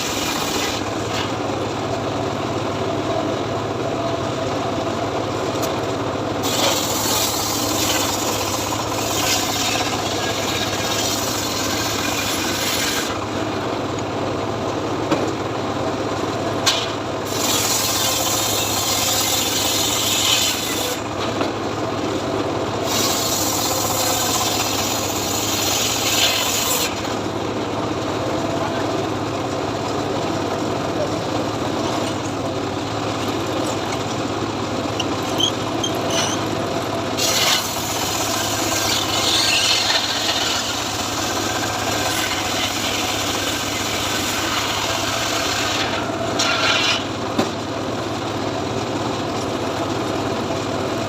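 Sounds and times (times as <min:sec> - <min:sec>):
saw rasping through wood: 0:00.0 - 0:01.0, 0:06.4 - 0:13.4, 0:17.2 - 0:21.1, 0:22.8 - 0:27.1, 0:37.2 - 0:47.1
engine running: 0:00.0 - 0:51.0.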